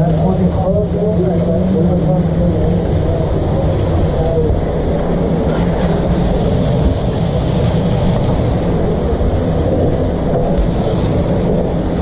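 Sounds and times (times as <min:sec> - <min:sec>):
machine rumble and hum: 0:00.0 - 0:12.0.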